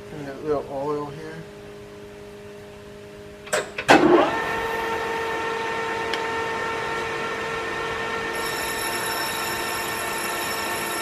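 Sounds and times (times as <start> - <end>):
metal lathe whine: 4.0 - 11.0
high-pitched ringing: 4.8 - 11.0.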